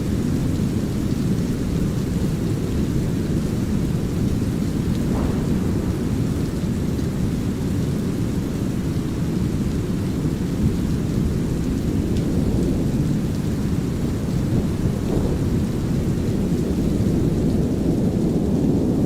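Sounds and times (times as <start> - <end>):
deep rumbling brown noise: 0.0 - 19.0
light drizzling rain: 0.0 - 19.0
low thunder rumble: 0.0 - 19.0.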